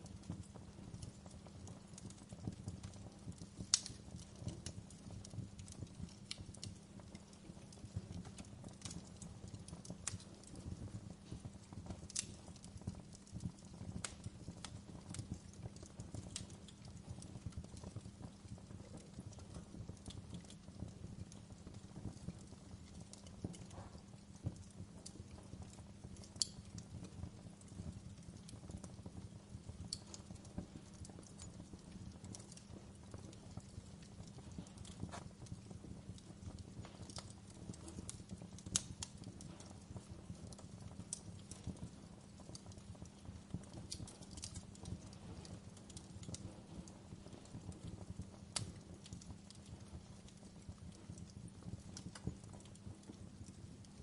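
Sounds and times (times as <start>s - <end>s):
fire crackling in a fireplace: 0.0s - 54.0s.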